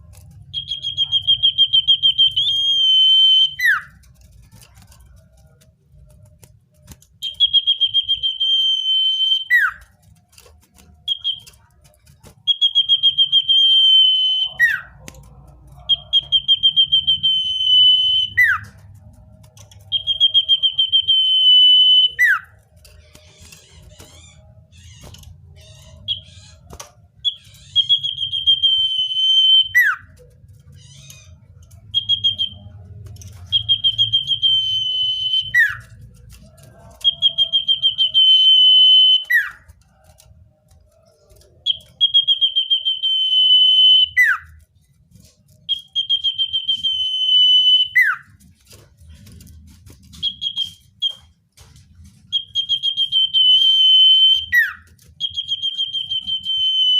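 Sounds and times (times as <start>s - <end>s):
bird singing trilled whistles: 0.5s - 3.9s, 7.2s - 9.8s, 52.3s - 56.9s.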